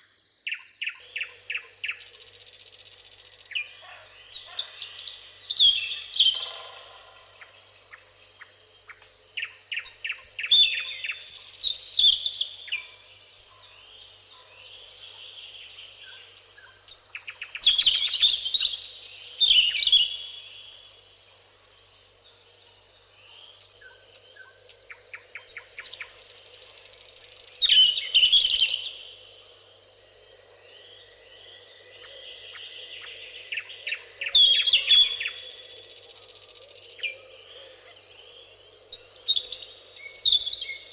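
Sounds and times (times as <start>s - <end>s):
songbirds singing and chirping: 0.0s - 40.9s.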